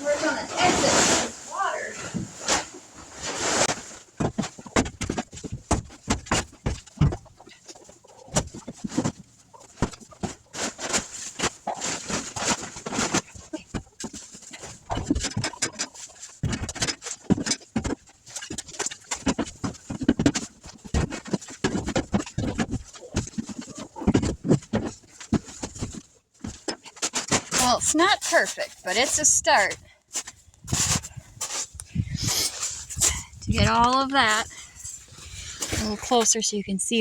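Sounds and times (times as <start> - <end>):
digging knocks and scrapes: 0.0 - 37.0
hens clucking: 6.9 - 12.6.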